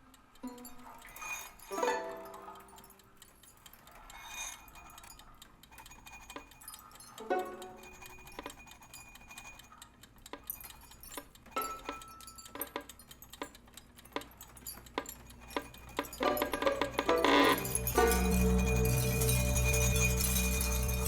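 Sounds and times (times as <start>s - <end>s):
clinks of small hard objects: 10.4s - 21.0s.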